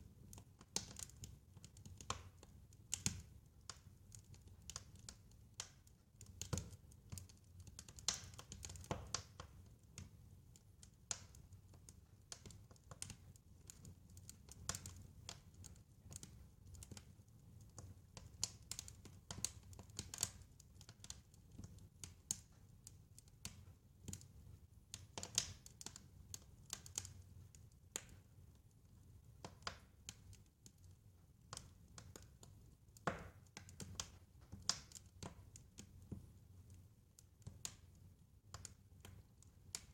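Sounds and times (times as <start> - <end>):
wood fire crackling: 0.0 - 39.9
snaps and pops of fire: 0.3 - 22.6, 23.2 - 28.3, 31.4 - 36.4.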